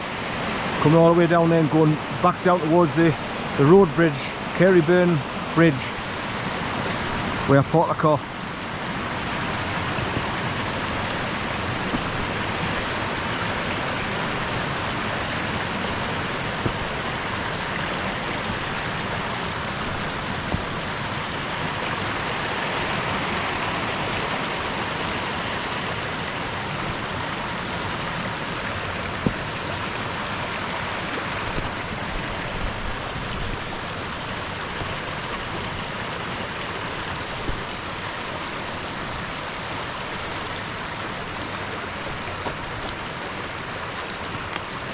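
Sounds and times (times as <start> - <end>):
water rushing over rocks: 0.0 - 44.9.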